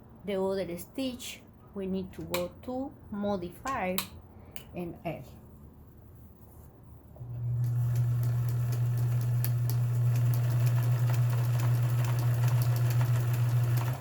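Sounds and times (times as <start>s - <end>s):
sewing machine running: 7.4s - 14.0s.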